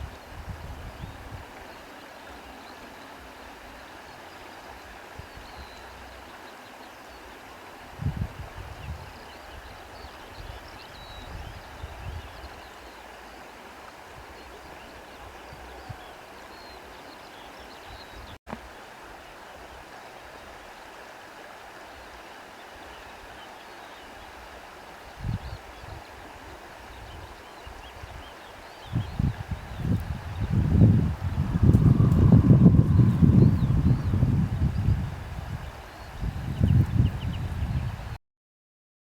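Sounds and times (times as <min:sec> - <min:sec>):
wind buffeting microphone: 0:00.0 - 0:01.6, 0:07.9 - 0:12.7, 0:25.2 - 0:38.2
faint birdsong: 0:00.0 - 0:07.9, 0:08.6 - 0:20.9, 0:22.5 - 0:37.9
wind through trees: 0:00.0 - 0:38.2.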